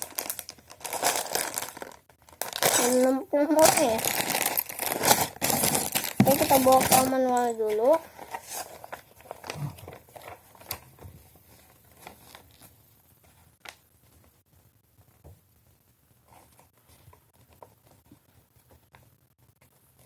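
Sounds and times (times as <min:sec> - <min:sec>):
plastic packaging rustling: 0:00.0 - 0:12.8.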